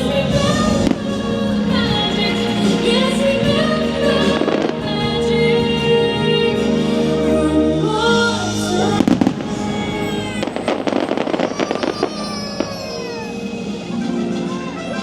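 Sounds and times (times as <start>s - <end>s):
fireworks crackling: 8.6s - 14.5s
show music: 8.6s - 15.0s
fireworks bangs: 9.0s - 13.8s.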